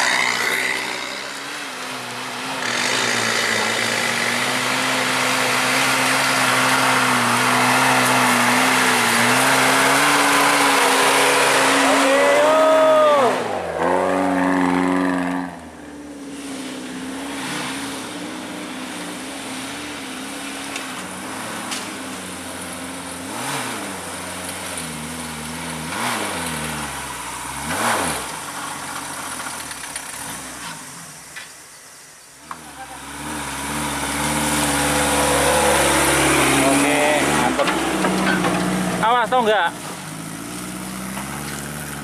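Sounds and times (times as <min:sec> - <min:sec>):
vehicle engine revving: 0:00.0 - 0:31.3, 0:32.4 - 0:42.0.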